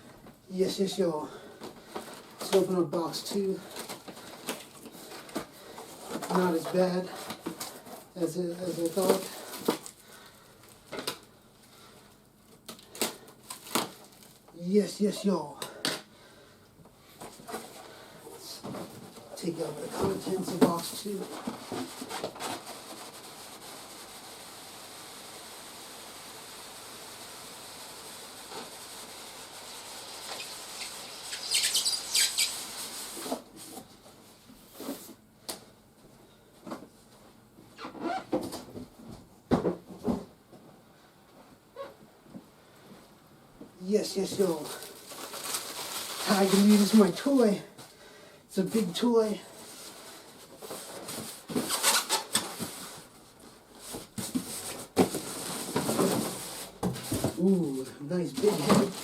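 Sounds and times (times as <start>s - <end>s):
plastic packaging crinkling: 3.6s - 11.3s, 12.6s - 14.5s, 44.5s - 47.4s, 58.3s - 59.0s
steady hiss: 23.0s - 33.5s.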